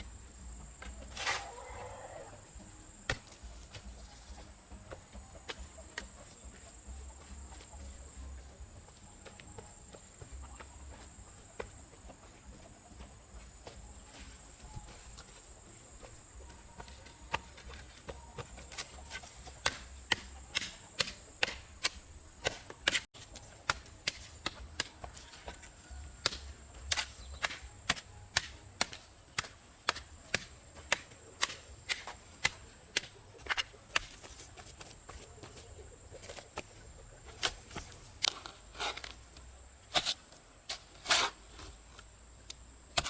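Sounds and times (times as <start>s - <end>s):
hand tool chopping: 3.0s - 6.6s, 16.0s - 35.6s, 37.3s - 39.2s, 39.9s - 41.7s, 42.5s - 43.0s.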